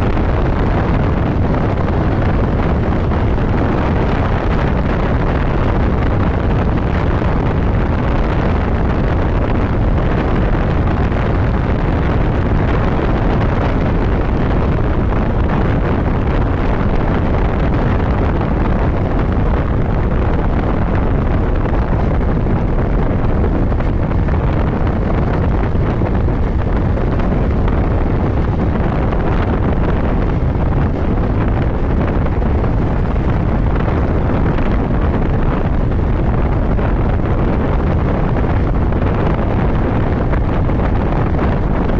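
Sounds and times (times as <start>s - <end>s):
motorcycle running with road noise: 0.0s - 41.9s
wind buffeting microphone: 0.0s - 41.9s.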